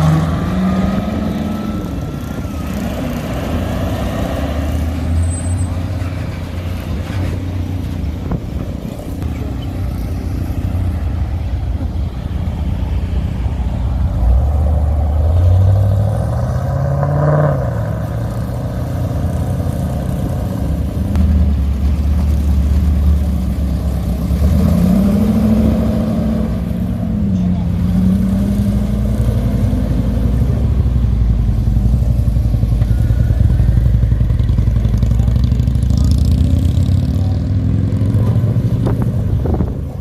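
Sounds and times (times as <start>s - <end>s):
car engines driving past: 0.0s - 40.0s
engine revving up: 24.2s - 31.0s, 33.2s - 40.0s.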